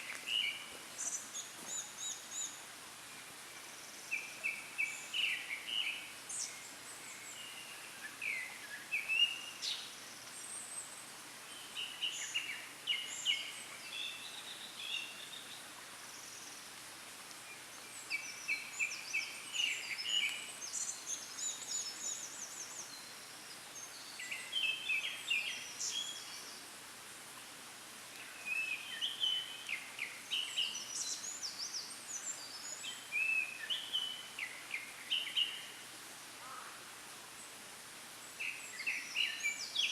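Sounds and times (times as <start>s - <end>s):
faint background hiss: 0.0s - 39.9s.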